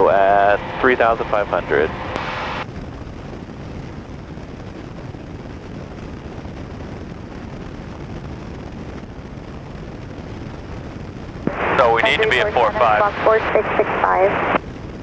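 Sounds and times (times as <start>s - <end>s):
plane engine droning: 0.0s - 3.5s, 11.2s - 14.6s.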